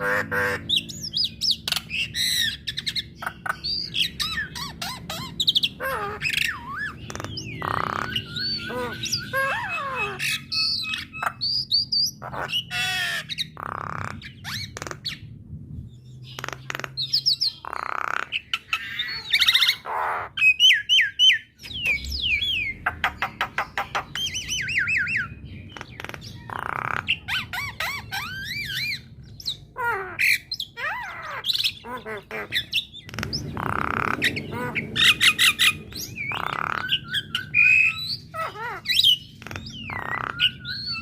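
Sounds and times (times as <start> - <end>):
myna singing whistles and squawks: 23.5 - 41.0.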